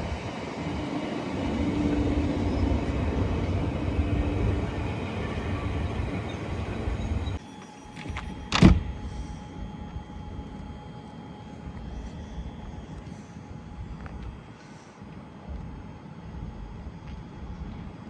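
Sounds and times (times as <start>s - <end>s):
train rumbling past: 0.0s - 7.4s.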